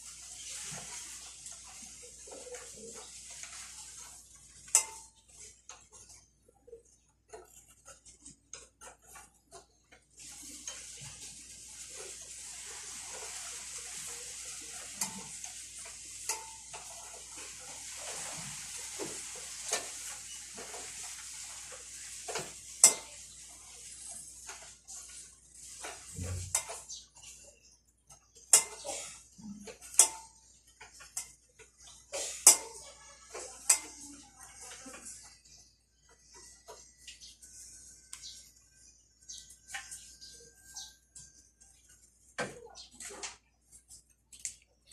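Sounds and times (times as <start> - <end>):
steady hiss: 10.2 - 27.0.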